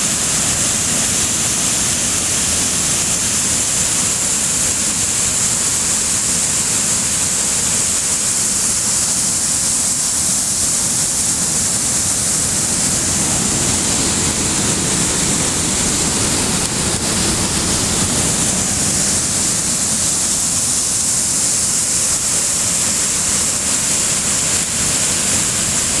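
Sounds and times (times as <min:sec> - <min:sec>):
rushing water: 0:00.0 - 0:26.0.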